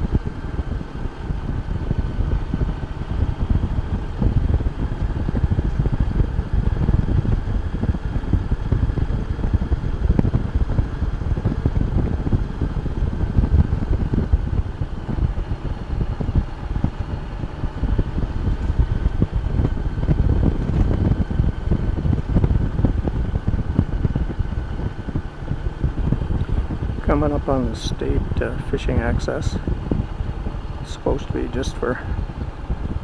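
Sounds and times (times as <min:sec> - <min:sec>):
motorcycle engine: 0:00.0 - 0:33.0
road noise: 0:00.0 - 0:33.0
wind buffeting microphone: 0:00.0 - 0:33.0.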